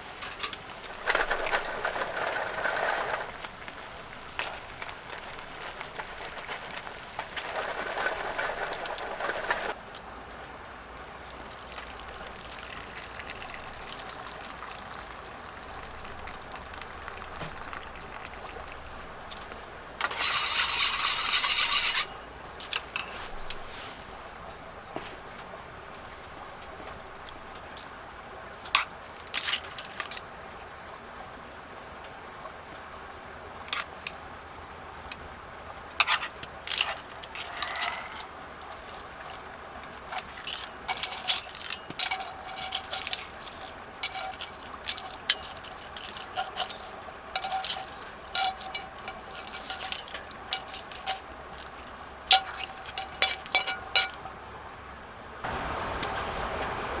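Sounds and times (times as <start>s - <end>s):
cookware and utensils clinking: 0.0s - 10.0s, 11.5s - 24.1s, 28.6s - 30.6s, 33.6s - 34.2s, 34.9s - 54.5s
steady background hiss: 0.0s - 57.0s.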